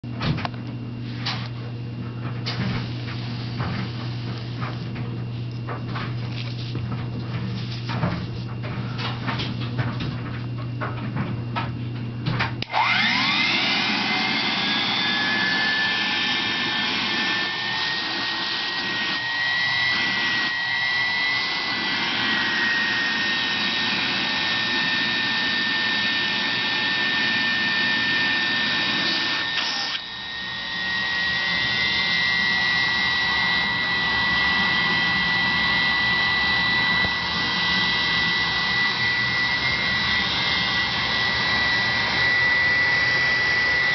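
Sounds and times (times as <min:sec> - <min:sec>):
vacuum cleaner motor whining: 0:00.1 - 0:43.9.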